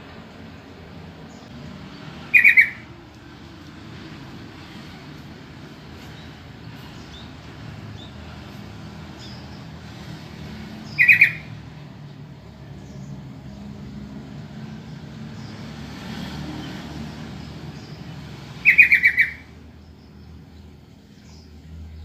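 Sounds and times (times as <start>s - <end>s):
bird calling: 2.2s - 3.0s, 10.8s - 11.6s, 18.5s - 19.6s.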